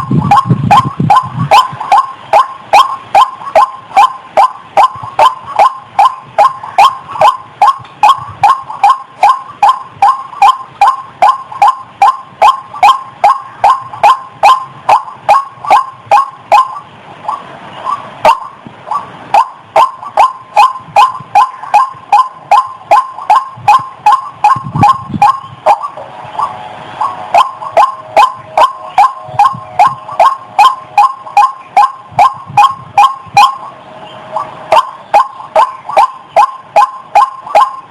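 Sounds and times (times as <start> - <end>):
bird calling short sharp notes: 0.0 - 37.9.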